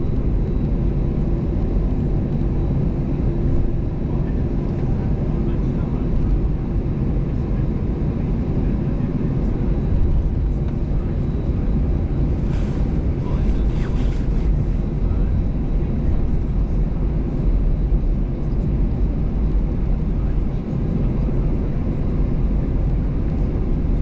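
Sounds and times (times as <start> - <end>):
airplane cabin rumble: 0.0 - 24.0.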